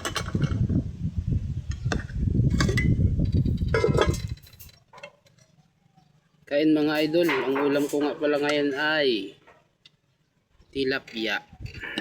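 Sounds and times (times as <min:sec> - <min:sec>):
utensils clinking on plate: 0:07.0 - 0:08.8.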